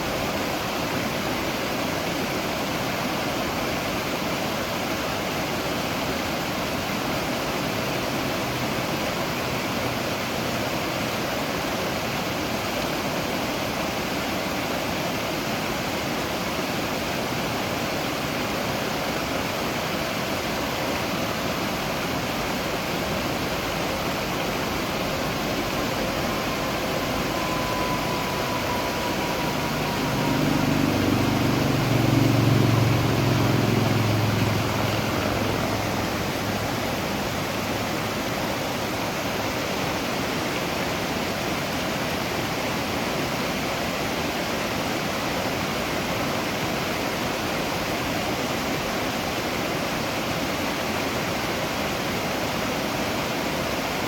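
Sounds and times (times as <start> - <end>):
waterfall rushing: 0.0 - 54.0
low rumble: 22.4 - 38.6.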